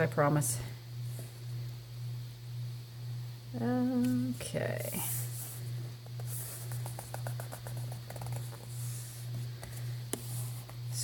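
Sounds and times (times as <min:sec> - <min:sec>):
steady low hum: 0:00.0 - 0:11.0
paper rustling: 0:06.2 - 0:10.8.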